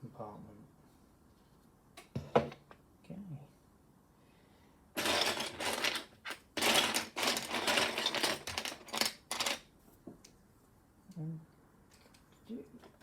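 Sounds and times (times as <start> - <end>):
plastic pieces rattling: 5.0 - 9.6.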